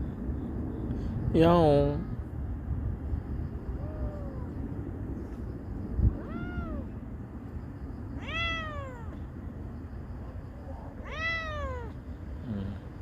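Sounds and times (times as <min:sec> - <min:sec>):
cat meowing: 0:03.8 - 0:04.6, 0:06.1 - 0:06.9, 0:08.2 - 0:09.3, 0:11.0 - 0:12.0.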